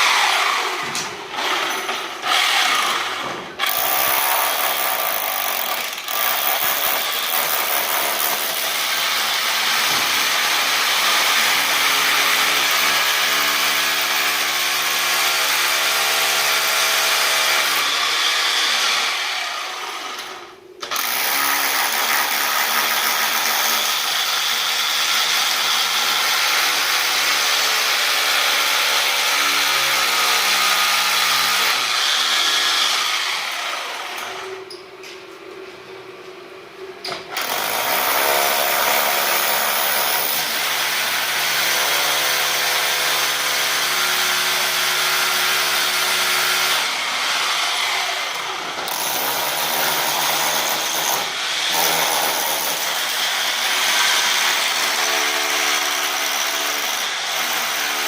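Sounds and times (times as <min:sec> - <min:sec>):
power tool cutting wood: 0:00.0 - 0:08.3.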